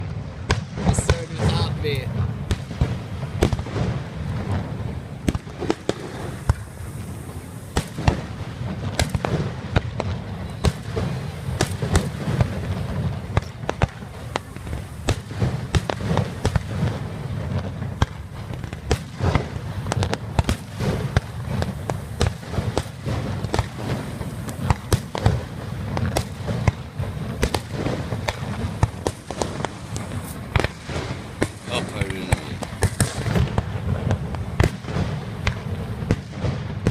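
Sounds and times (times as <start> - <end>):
fireworks bangs and crackles: 0.0 - 36.9.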